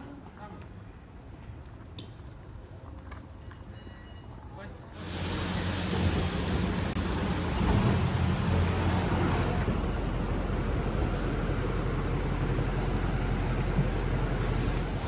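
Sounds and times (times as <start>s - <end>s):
low mechanical rumble: 5.0s - 15.0s.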